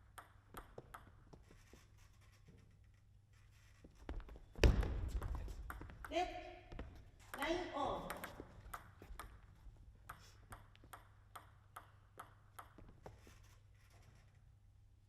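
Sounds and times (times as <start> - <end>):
table tennis ball clicks: 7.2 - 13.2.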